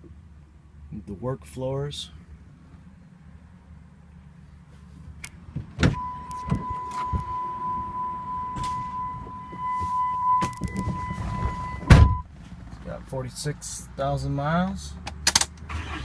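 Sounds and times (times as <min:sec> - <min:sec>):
electronic warning tone: 0:06.0 - 0:12.2.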